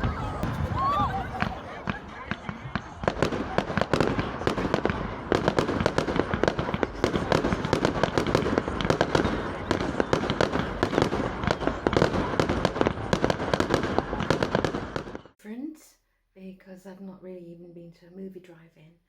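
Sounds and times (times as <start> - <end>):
fireworks bangs and crackling: 0.0 - 15.4.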